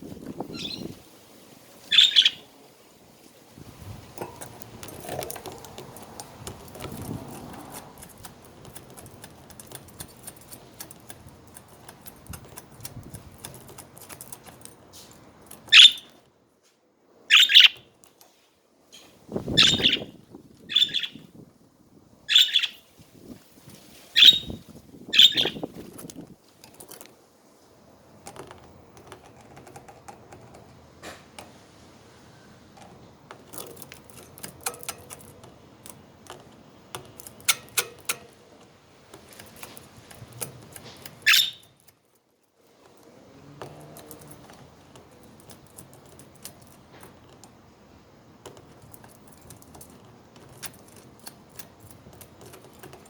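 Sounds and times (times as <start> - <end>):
budgerigars chattering softly: 1.9 - 2.4, 17.3 - 17.8, 19.6 - 20.1, 20.7 - 21.2, 22.3 - 22.8, 24.2 - 25.7, 41.2 - 41.7
loud sharp bird calls: 1.9 - 2.5, 15.7 - 16.1, 17.3 - 17.8, 19.5 - 21.3, 22.3 - 22.9, 24.2 - 25.7, 41.2 - 41.7.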